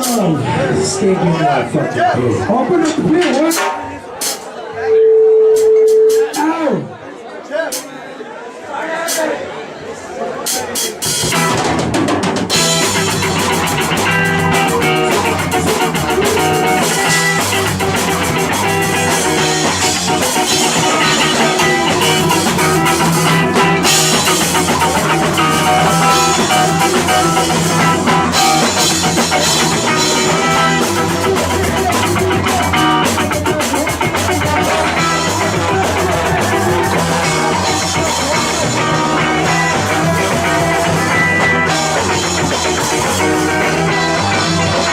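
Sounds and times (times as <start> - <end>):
live band playing: 0.0 - 7.0, 10.4 - 44.9.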